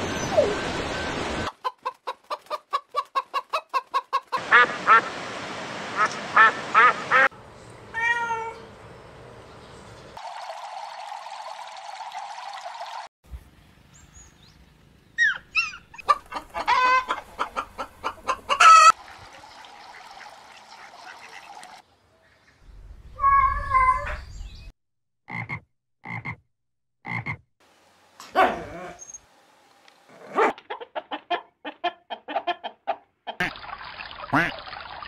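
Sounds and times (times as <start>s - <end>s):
chickens calling: 1.4s - 5.1s, 6.0s - 7.3s, 15.2s - 19.0s, 30.5s - 33.5s.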